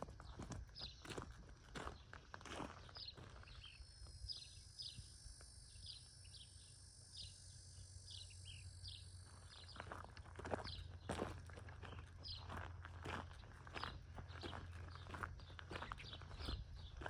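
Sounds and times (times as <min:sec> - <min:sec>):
bird chirping: 0:05.7 - 0:10.0
faint footsteps: 0:09.3 - 0:17.0.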